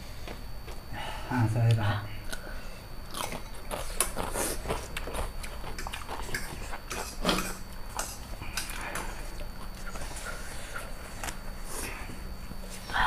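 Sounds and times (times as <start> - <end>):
chewing and wet smacking: 2.3 - 11.6.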